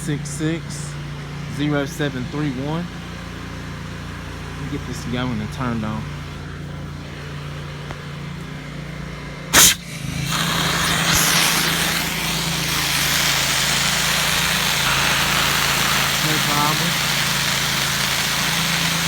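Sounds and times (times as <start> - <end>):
pump system humming: 0.0 - 19.0
sharp loud burst: 9.6 - 13.2, 13.9 - 19.0
spray hissing: 9.6 - 19.0.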